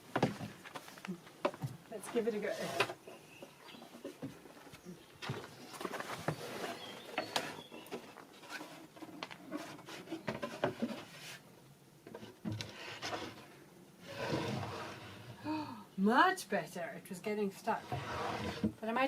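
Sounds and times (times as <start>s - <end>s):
drawer scraping against frame: 12.5s - 15.4s, 17.7s - 18.8s.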